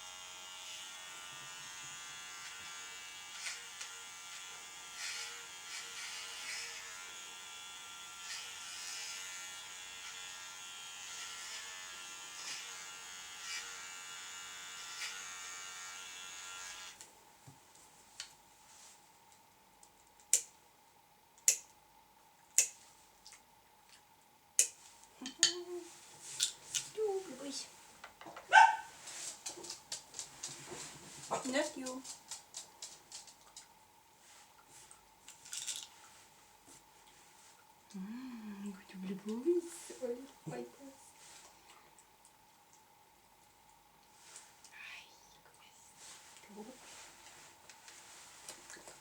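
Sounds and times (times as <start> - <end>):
electric clippers buzzing: 0.0 - 17.0.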